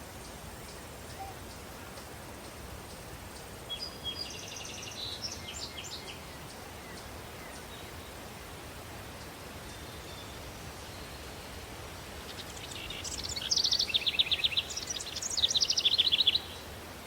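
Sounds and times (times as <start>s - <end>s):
steady outdoor hiss: 0.0s - 17.0s
songbird chirping and trilling: 3.7s - 8.0s, 12.2s - 16.7s.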